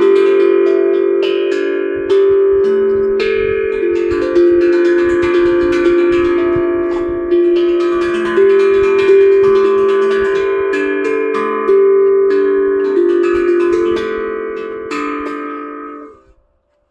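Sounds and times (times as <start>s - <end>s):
steel tongue drum notes: 0.0s - 16.9s.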